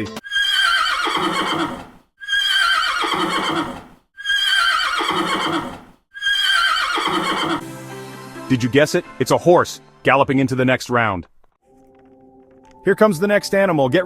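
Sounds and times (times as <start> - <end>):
horse whinnying: 0.2 - 7.6.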